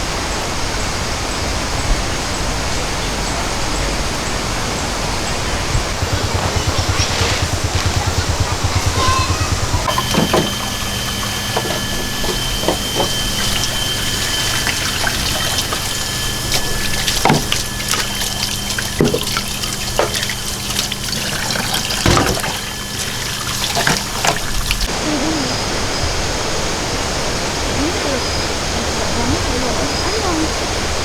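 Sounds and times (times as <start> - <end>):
faint steady hum: 0.0 - 31.0
water trickling and dripping: 6.1 - 24.9.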